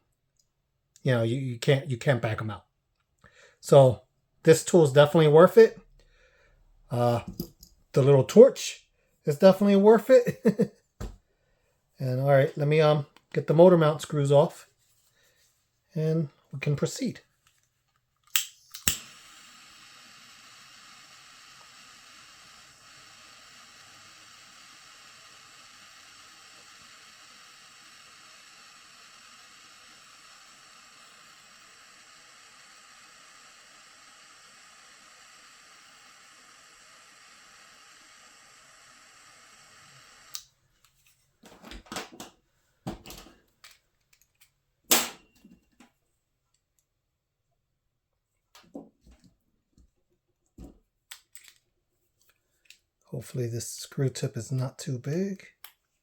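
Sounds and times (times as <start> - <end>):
torch lighting click: 18.3 - 39.3
butane torch hissing: 18.3 - 40.5.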